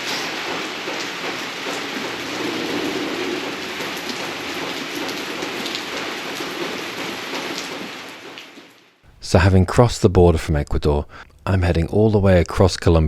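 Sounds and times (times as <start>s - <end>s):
steady rain falling: 0.0s - 9.1s.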